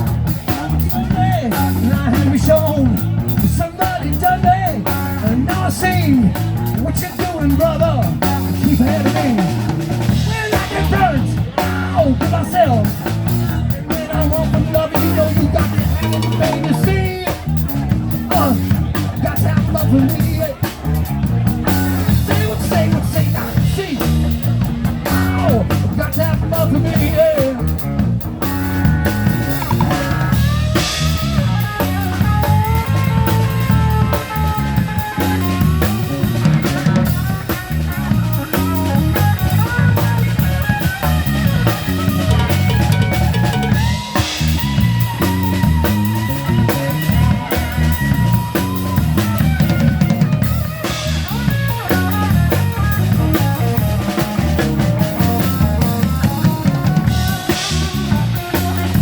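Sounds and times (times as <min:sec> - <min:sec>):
bass guitar: 0:00.0 - 0:59.0
drum kit groove: 0:00.0 - 0:59.0
lead instrument melody: 0:12.5 - 0:59.0.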